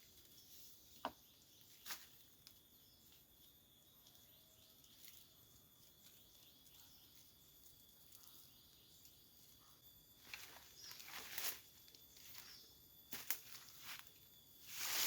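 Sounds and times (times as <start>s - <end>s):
high-pitched insect drone: 9.6s - 15.0s.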